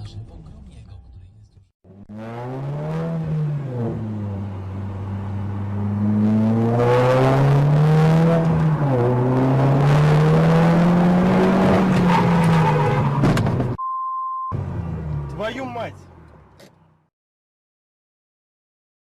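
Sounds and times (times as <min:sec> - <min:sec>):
car engine accelerating: 0:01.9 - 0:13.8, 0:14.5 - 0:17.0
road and wind noise: 0:01.9 - 0:13.8, 0:14.5 - 0:17.1.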